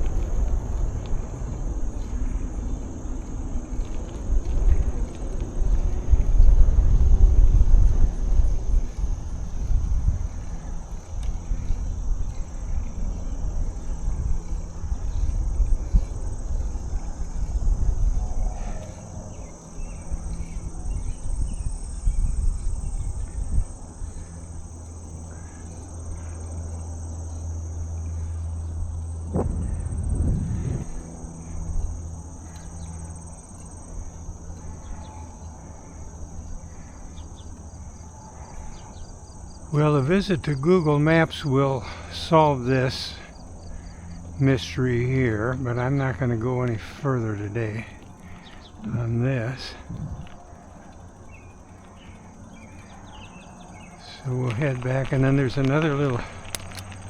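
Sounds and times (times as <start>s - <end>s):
wind on microphone: 0.0s - 24.2s, 29.2s - 32.0s, 49.8s - 50.5s
insect chorus drone: 0.0s - 57.0s
steady low hum: 0.0s - 57.0s.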